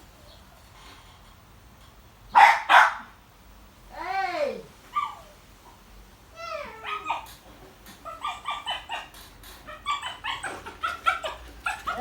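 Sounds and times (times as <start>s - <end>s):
dog yipping and whining: 4.9s - 5.4s, 6.4s - 12.0s.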